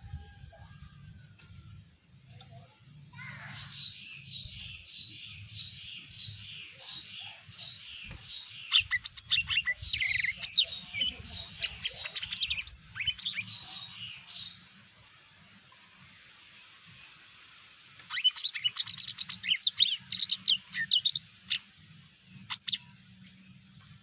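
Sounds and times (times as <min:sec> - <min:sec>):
bird singing: 0:02.2 - 0:14.6, 0:18.1 - 0:21.7, 0:22.3 - 0:23.0.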